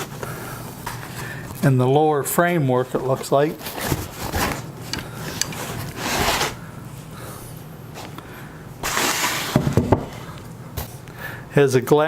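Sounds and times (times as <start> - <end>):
rustling of wrapping and foam: 2.9 - 6.6.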